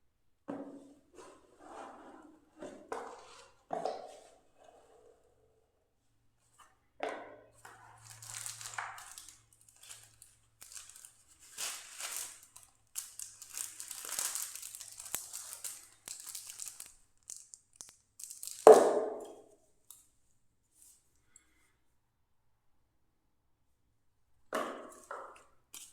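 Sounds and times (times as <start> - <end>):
packaging crinkling and tearing: 8.0 - 18.8.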